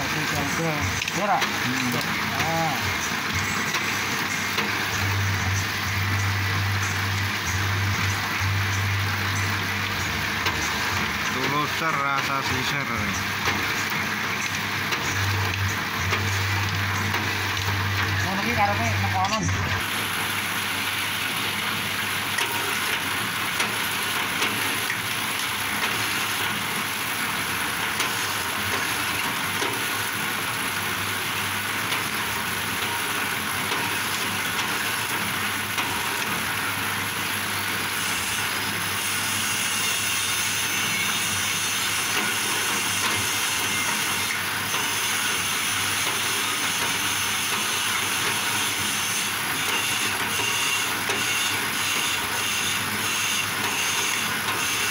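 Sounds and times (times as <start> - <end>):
bamboo shaving machine clattering: 0.0 - 6.3, 39.1 - 54.9.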